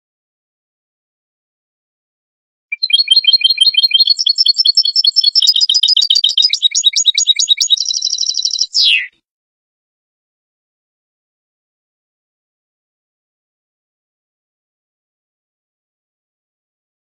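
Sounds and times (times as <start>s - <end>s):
goldfinch twittering song: 2.7s - 9.1s.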